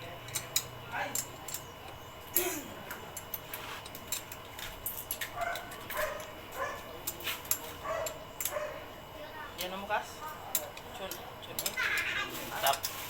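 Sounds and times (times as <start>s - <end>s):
metallic clicks and clinks: 0.2s - 6.3s, 10.5s - 13.0s
dog yapping and yelping: 5.4s - 6.8s, 7.8s - 8.8s.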